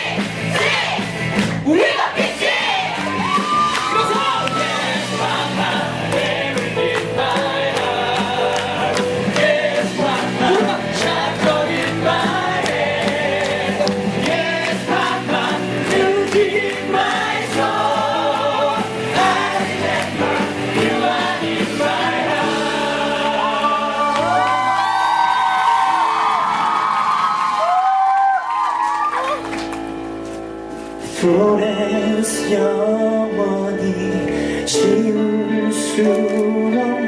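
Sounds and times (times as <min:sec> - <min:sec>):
voices singing together: 0:00.0 - 0:01.1, 0:01.7 - 0:03.2, 0:04.1 - 0:25.4
band accompaniment: 0:00.0 - 0:27.2.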